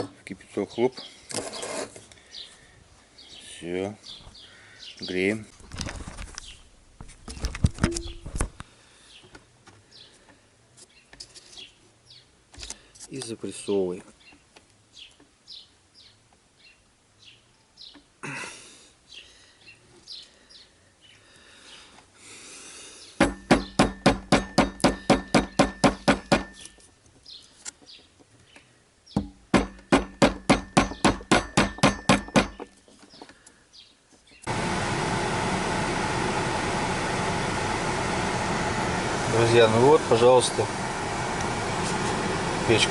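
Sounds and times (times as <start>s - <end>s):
blower motor running: 34.5s - 42.9s.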